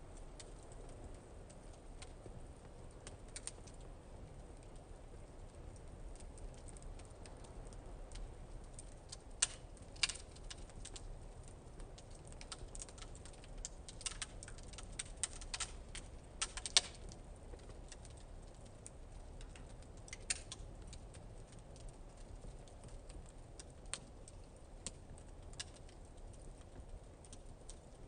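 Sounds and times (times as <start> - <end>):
wood fire crackling: 0.0 - 28.0
sharp fire pops: 11.8 - 17.8.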